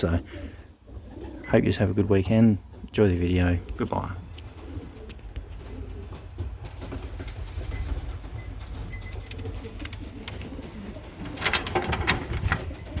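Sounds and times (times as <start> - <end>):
pigeons cooing: 0.0 - 1.9, 3.6 - 13.0
loud clattering: 11.2 - 12.9.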